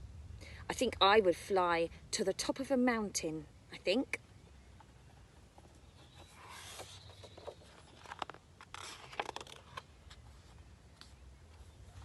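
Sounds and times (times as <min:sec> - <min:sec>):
book pages rustling: 0:05.6 - 0:12.0.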